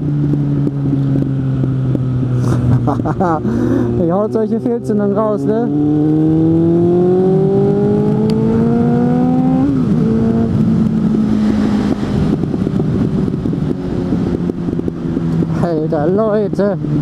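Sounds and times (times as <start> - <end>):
motorcycle engine accelerating: 0.0 - 17.0
wind rushing: 5.6 - 16.0
exhaust backfires crackling: 9.6 - 15.8.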